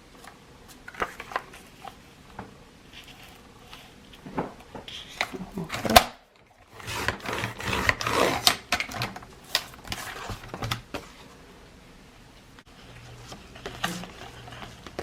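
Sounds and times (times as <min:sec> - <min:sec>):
paper trimming clicks and scraping: 0:06.7 - 0:10.8.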